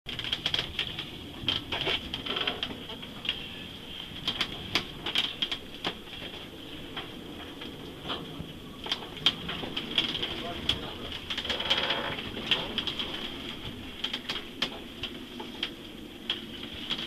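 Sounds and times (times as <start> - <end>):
rushing wind: 0.1 - 17.0
waves: 0.1 - 17.0.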